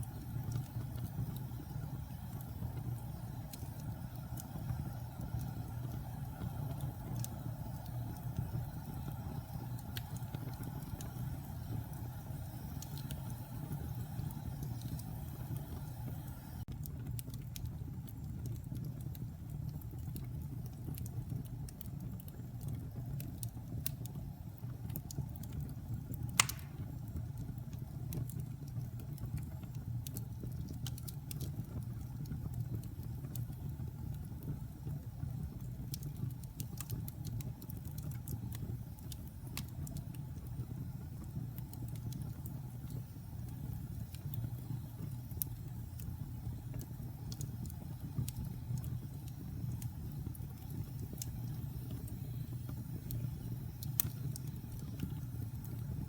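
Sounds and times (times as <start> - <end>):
fire crackling: 0.0 - 56.0
wood fire rumbling: 0.0 - 56.0
sharp pop of fire: 26.4 - 27.0.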